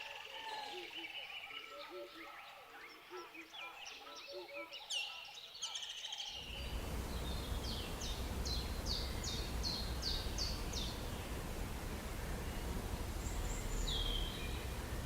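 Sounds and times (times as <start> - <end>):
background hiss: 6.4 - 15.0
low rumble: 6.4 - 15.0.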